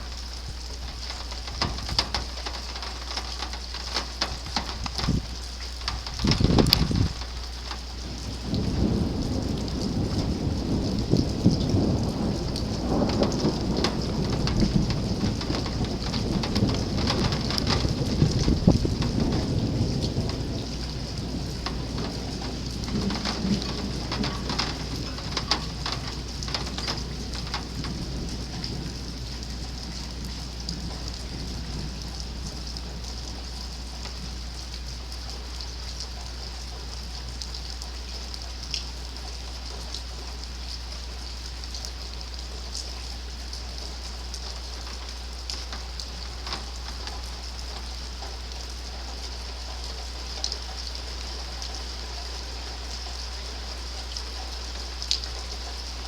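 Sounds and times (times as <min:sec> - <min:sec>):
low thunder rumble: 0:00.0 - 0:40.6, 0:43.2 - 0:50.4
steady rain falling: 0:00.0 - 0:56.0.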